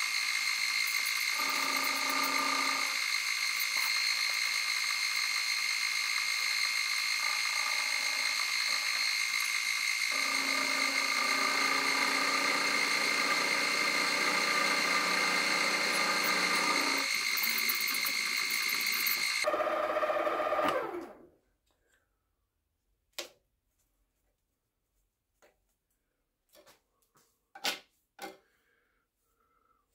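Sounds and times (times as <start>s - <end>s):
milling machine high whine: 0.0s - 21.1s
spindle winding down: 0.0s - 21.2s.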